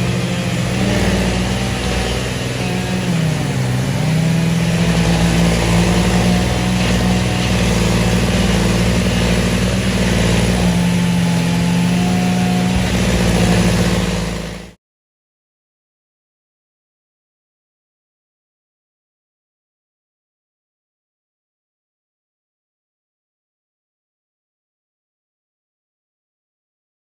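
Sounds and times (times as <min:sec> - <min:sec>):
engine running at high speed: 0:00.0 - 0:14.8.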